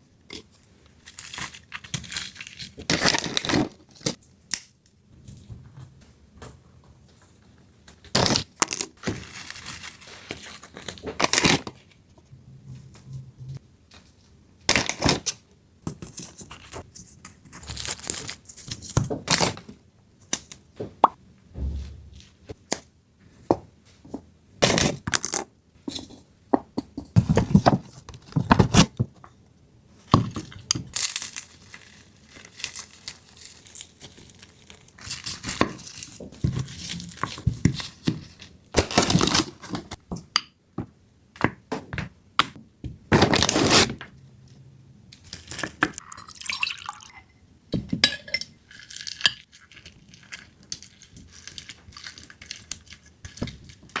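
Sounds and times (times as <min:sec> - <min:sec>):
dishes and utensils clinking: 0:46.1 - 0:48.6.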